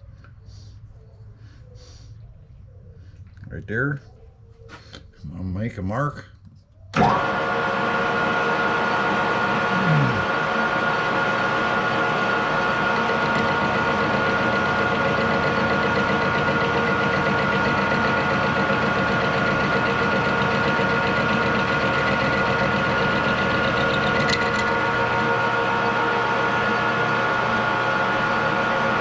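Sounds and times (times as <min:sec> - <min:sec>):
metal lathe whining: 0:07.0 - 0:29.0.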